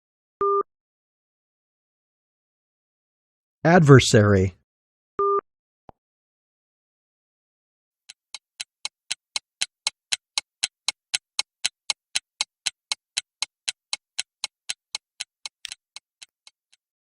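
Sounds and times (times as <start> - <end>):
clock ticking: 8.0 - 17.0.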